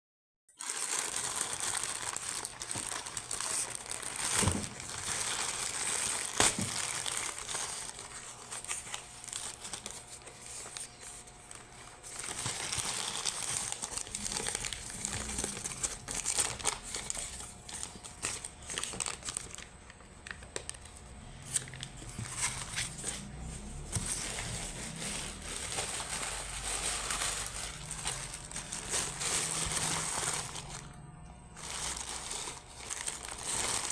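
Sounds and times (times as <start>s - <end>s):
packaging crinkling: 0.6s - 31.0s, 31.6s - 33.9s.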